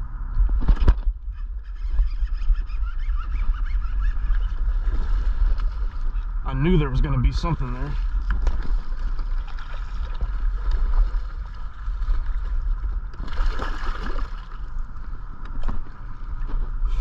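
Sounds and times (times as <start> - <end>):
water noise around boat: 0.0 - 17.0
wind rumble on microphone: 0.0 - 17.0
water splash: 8.0 - 14.7.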